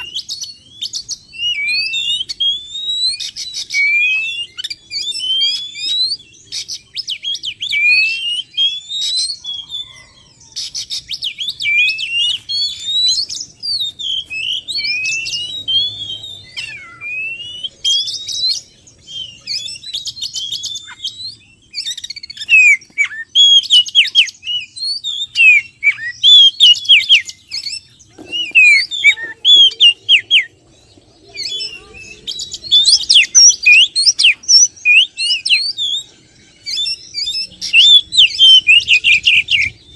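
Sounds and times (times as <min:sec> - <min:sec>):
bird song with whistles and trills: 0:00.0 - 0:39.9.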